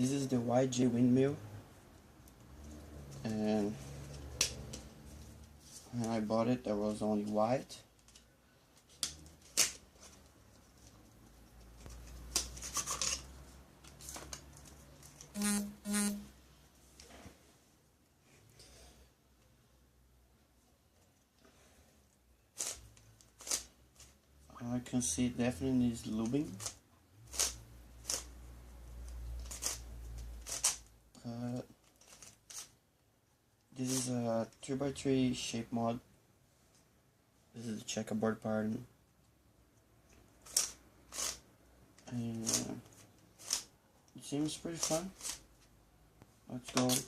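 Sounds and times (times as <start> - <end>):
plastic scratching and rustling: 7.2 - 15.4, 22.5 - 24.4, 29.0 - 31.0, 31.6 - 32.8, 40.4 - 41.4, 42.0 - 45.8
short pitched sounds: 15.3 - 16.3
puzzle cube plastic clicks: 22.6 - 24.1, 26.2 - 28.3, 29.4 - 30.9, 31.8 - 32.7, 40.4 - 41.4, 42.0 - 43.7, 44.4 - 45.4.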